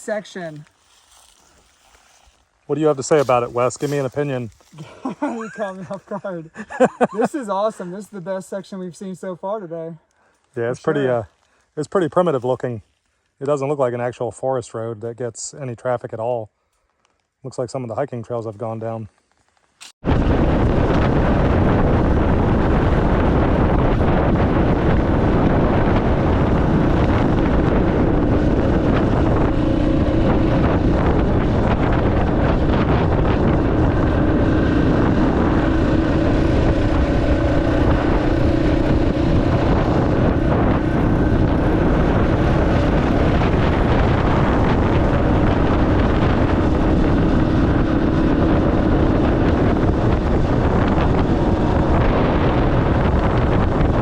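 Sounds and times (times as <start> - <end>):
wind noise on microphone: 19.8 - 54.0
motorcycle engine running: 20.1 - 54.0.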